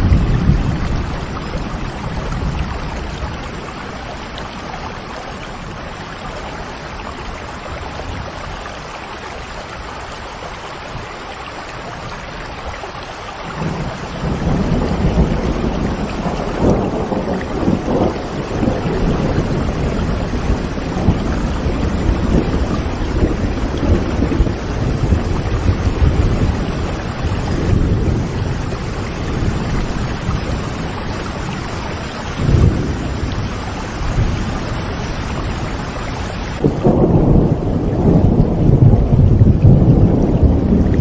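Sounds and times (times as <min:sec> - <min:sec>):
rolling thunder: 0:00.0 - 0:03.8, 0:13.5 - 0:41.0
heavy rain: 0:00.0 - 0:41.0.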